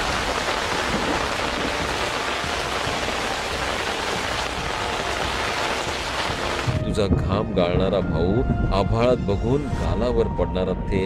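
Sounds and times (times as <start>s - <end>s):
heavy rain falling on trees: 0.0s - 6.8s.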